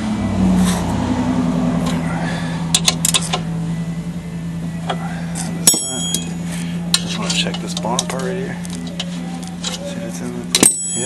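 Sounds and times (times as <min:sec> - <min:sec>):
steady low hum: 0:00.0 - 0:11.0
metal tools clinking: 0:04.9 - 0:09.9, 0:10.5 - 0:11.0.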